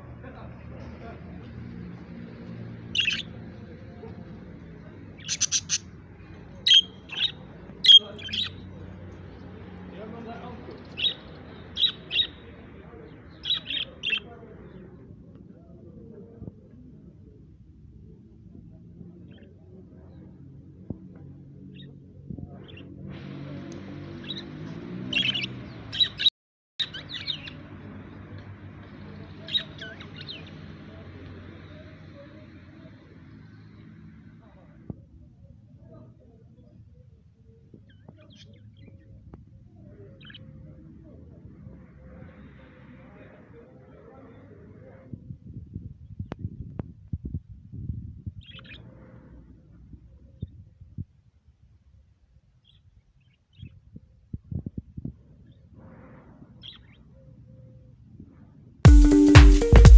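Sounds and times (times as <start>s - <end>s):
small birds chirping: 1.4s - 15.2s, 21.6s - 34.4s, 37.6s - 40.9s, 48.4s - 49.4s, 56.6s - 57.7s.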